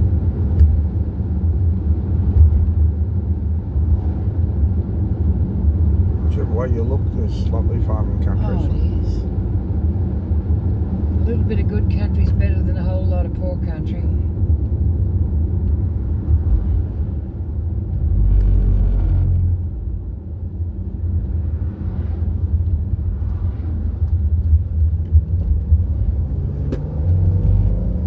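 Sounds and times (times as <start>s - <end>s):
vehicle engine and tyre rumble: 0.0s - 28.0s.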